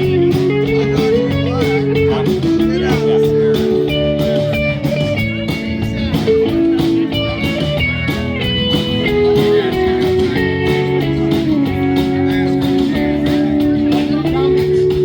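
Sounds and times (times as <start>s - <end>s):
drums: 0.0s - 15.0s
guitars: 0.0s - 15.0s.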